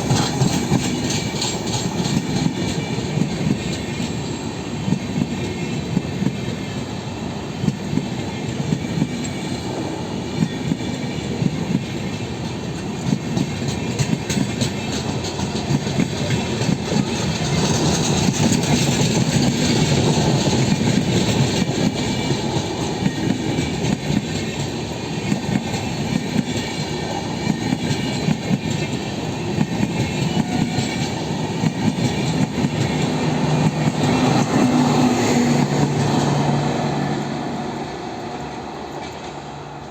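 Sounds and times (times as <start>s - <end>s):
train rumble: 0.0s - 39.9s
train wheels clicking over joints: 0.0s - 39.9s.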